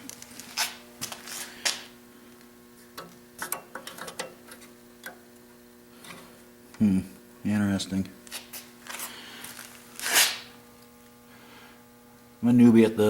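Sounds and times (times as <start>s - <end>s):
faint steady hum: 0.0s - 13.0s
hand tools clicking and tapping metal: 3.0s - 5.2s.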